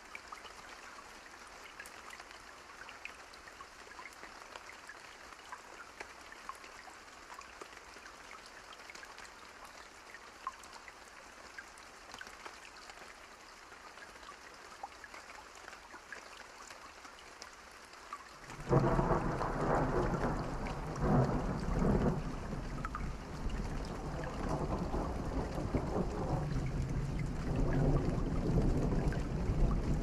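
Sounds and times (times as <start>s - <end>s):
steady rain: 0.0s - 30.0s
thunder rumbling: 18.6s - 30.0s.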